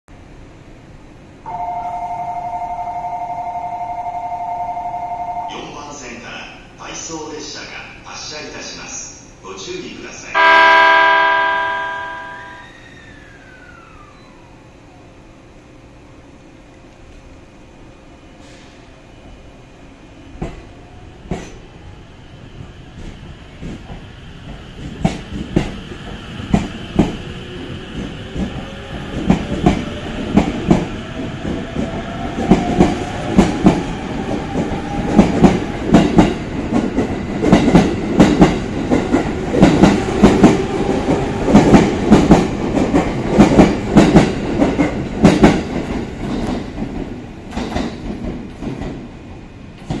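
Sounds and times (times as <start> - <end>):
train wheels clicking over rail joints: 23.0 - 27.2, 27.9 - 49.1.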